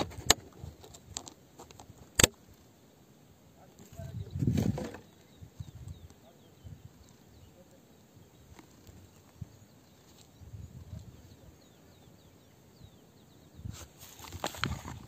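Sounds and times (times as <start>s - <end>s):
small birds chirping: 0.5s - 15.0s
low rumbles on microphone: 4.0s - 7.0s.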